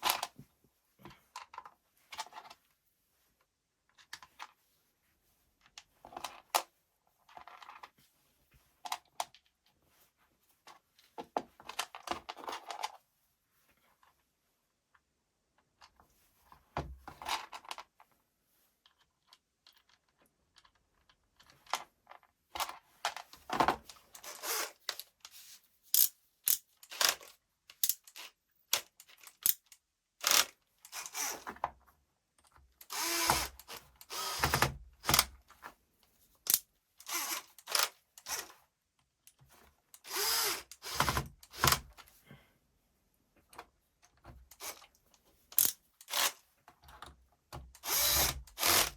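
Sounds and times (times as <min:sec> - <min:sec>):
cordless drill running: 0:24.3 - 0:24.7, 0:30.2 - 0:31.4, 0:32.9 - 0:35.3, 0:37.1 - 0:38.5, 0:40.1 - 0:41.8, 0:47.8 - 0:48.9.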